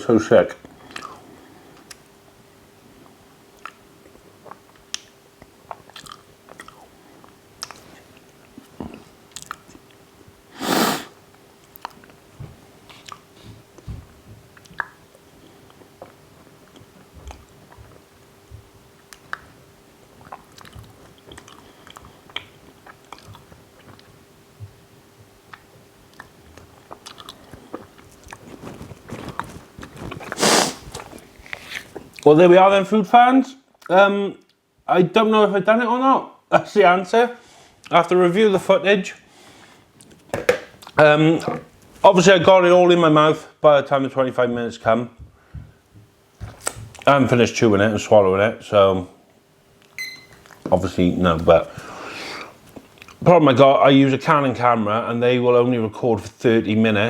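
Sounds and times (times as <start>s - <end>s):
faint steady hum: 0.0s - 57.0s
chewing cereal crunches: 5.7s - 8.3s, 25.5s - 32.2s.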